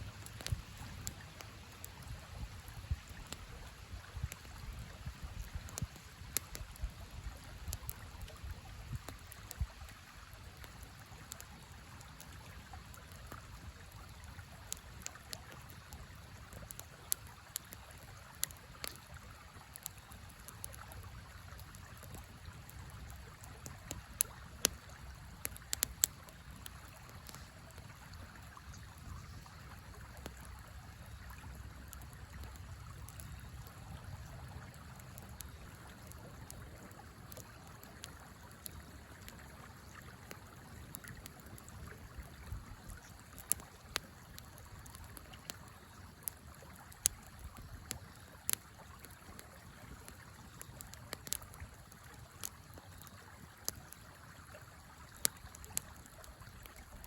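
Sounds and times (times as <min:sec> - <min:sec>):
campfire crackling: 0:00.0 - 0:57.0
sharp pops of fire: 0:00.2 - 0:03.6, 0:21.9 - 0:27.8.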